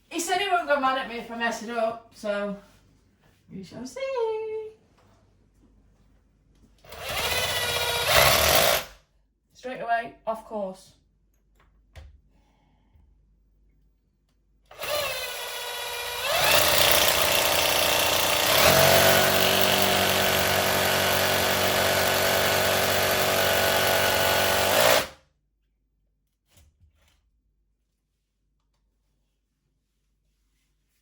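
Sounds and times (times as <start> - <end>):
hammer drill drilling into wall: 6.8 - 9.0, 14.7 - 25.2.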